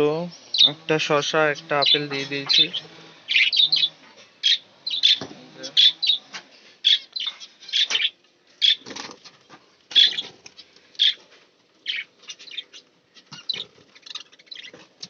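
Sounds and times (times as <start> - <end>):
small birds chirping: 0.0 - 15.0
wing flutters: 7.9 - 15.0.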